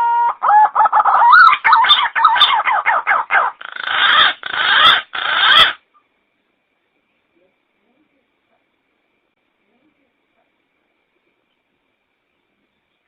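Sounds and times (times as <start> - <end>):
pigeon calling: 0.0 - 5.8.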